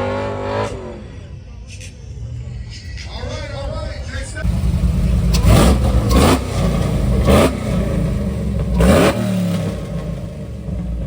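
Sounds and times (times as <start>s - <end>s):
car engine idling: 3.0s - 11.0s
car engine revving: 4.4s - 11.0s.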